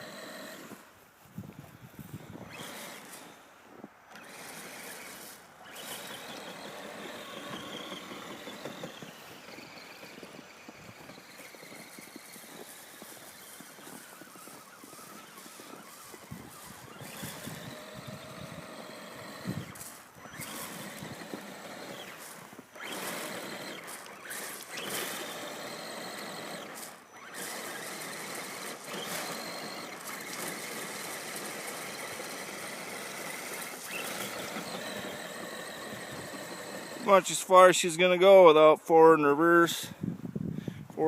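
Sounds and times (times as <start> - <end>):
electric motor and gears whining: 0.0 - 40.2.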